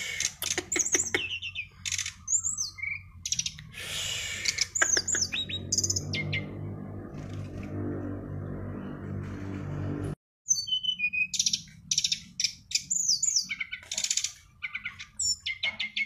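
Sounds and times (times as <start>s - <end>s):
songbird chirping and whistling: 0.6s - 3.7s, 4.4s - 6.6s, 10.5s - 16.0s.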